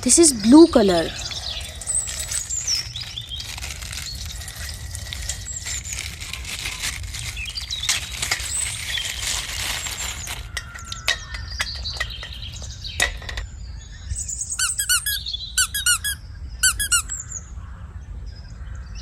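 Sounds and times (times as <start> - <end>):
plastic bag crinkling: 0.1 - 13.4
high squeaks: 14.6 - 17.2.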